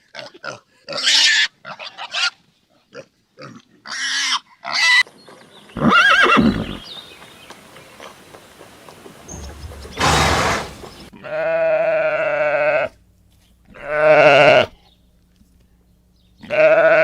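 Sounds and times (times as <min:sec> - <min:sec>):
short noisy burst: 0:09.2 - 0:11.1
animal bleating: 0:09.4 - 0:13.0, 0:13.7 - 0:14.8, 0:16.4 - 0:17.0.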